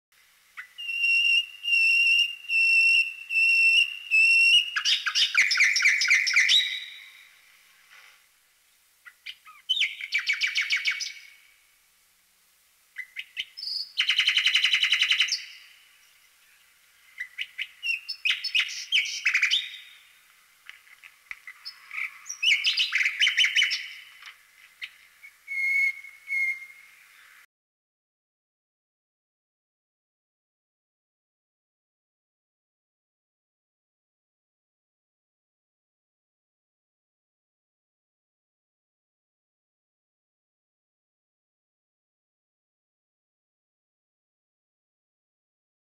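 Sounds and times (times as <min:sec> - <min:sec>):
bird whistling and trilling: 0:00.6 - 0:07.1, 0:09.2 - 0:11.4, 0:13.0 - 0:15.7, 0:17.2 - 0:20.0, 0:21.6 - 0:24.1, 0:24.8 - 0:26.9.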